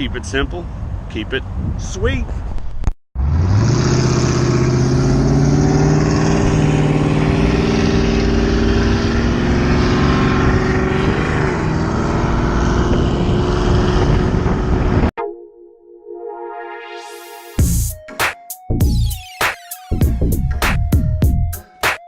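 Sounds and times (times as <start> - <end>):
wind: 0.0 - 15.1
road rumble: 0.0 - 15.2.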